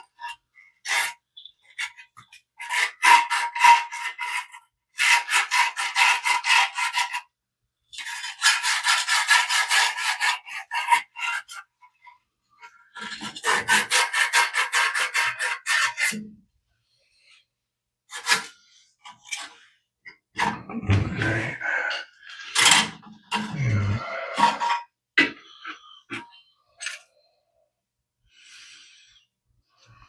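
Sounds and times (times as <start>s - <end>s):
emery cloth scrubbing metal rod: 20.4s - 22.1s.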